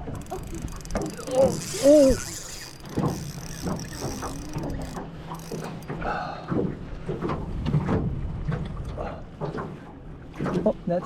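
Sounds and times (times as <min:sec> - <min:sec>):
fishing reel ratcheting: 0:00.0 - 0:06.1.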